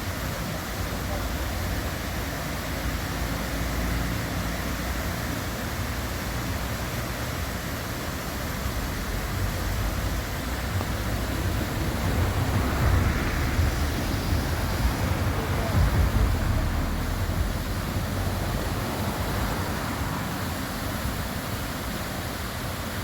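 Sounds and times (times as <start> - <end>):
city street ambience: 0.0 - 23.0
heavy low rumble: 8.4 - 20.2.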